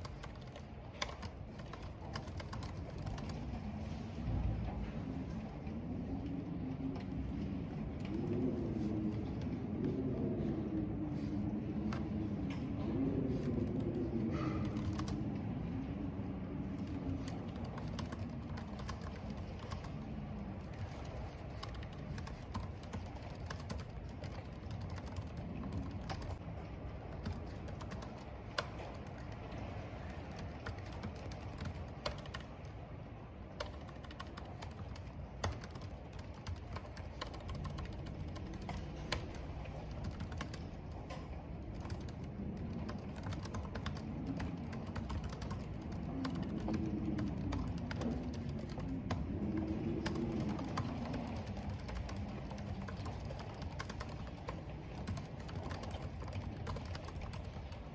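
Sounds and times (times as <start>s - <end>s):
keyboard typing: 0.0s - 3.6s, 13.3s - 15.4s, 16.6s - 26.4s, 27.2s - 32.7s, 33.6s - 57.9s
rain: 0.0s - 57.9s
wind: 0.0s - 57.9s.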